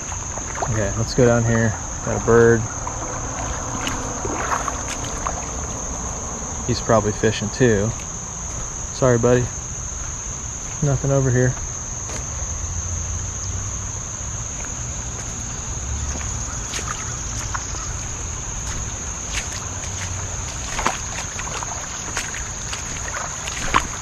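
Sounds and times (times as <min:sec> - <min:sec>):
crickets droning: 0:00.0 - 0:24.0.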